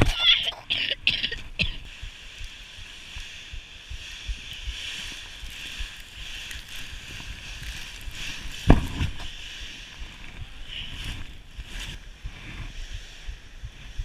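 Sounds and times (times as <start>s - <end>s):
low rumbling: 0.0s - 14.0s
sled hissing on snow: 1.8s - 14.0s
sled thumping on bump: 6.9s - 9.4s.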